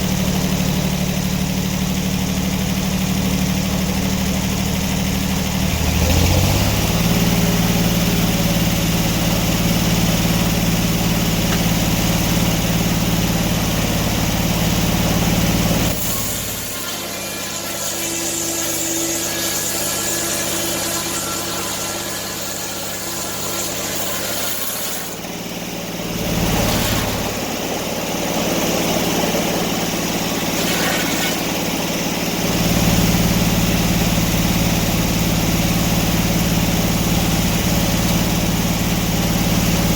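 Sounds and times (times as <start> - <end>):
large engine deep hum: 0.0 - 23.0, 25.2 - 39.9
higher engine whine: 0.0 - 39.9.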